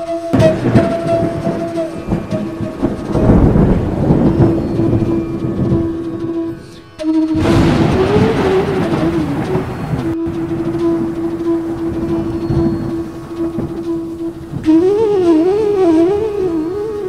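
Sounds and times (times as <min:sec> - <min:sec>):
flute holding a note: 0:00.0 - 0:17.0
thunder rumbling: 0:00.0 - 0:17.0.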